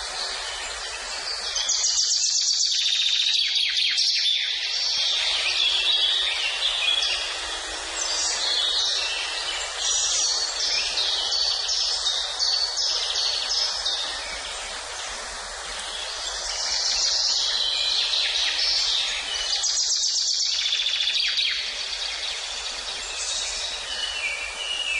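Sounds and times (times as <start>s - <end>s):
background hiss: 0.0s - 24.9s
songbirds singing: 0.0s - 24.9s.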